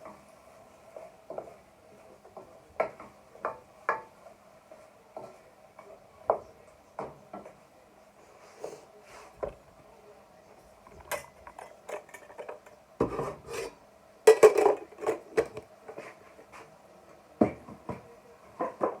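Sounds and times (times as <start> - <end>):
spoon scraping a pan: 10.9 - 13.8.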